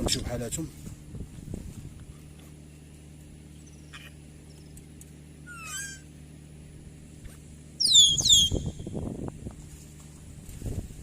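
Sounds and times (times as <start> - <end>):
low steady hum: 0.0 - 11.0
parrot whistled call: 5.4 - 6.1, 7.8 - 8.8.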